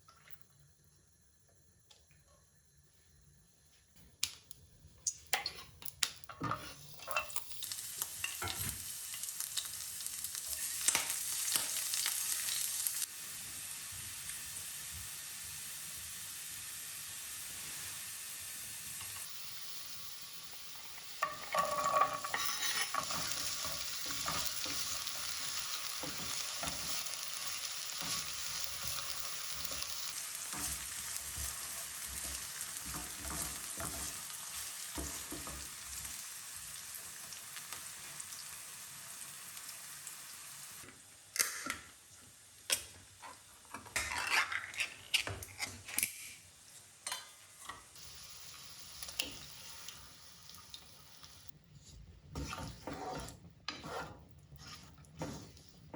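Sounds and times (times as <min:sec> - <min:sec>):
food sizzling in a frying pan: 0:05.3 - 0:44.6, 0:47.1 - 0:51.6.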